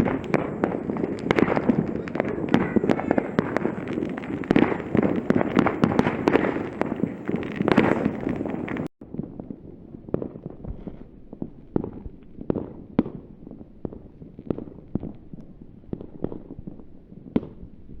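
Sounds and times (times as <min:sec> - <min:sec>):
fireworks bangs and pops: 0:00.0 - 0:18.0.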